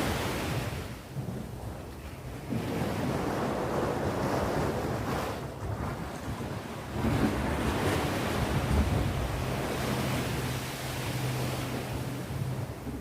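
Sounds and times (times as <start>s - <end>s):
sea waves washing on shore: 0.0s - 13.0s.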